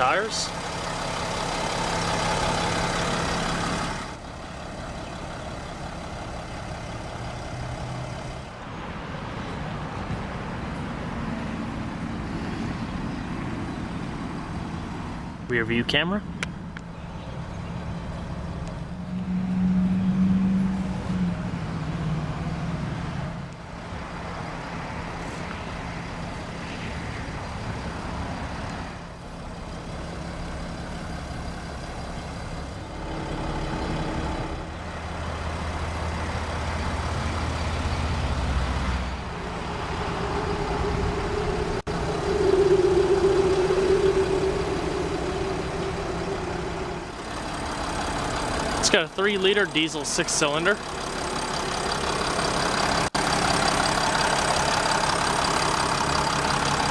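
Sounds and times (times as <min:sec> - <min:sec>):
diesel engine idling: 0:00.0 - 0:19.1, 0:23.5 - 0:56.9
humming tones: 0:39.6 - 0:50.8.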